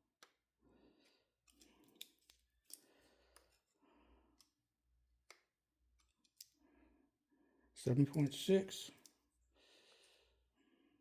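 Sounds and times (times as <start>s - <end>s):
clicks of small metal parts: 1.4s - 3.5s, 6.0s - 6.6s.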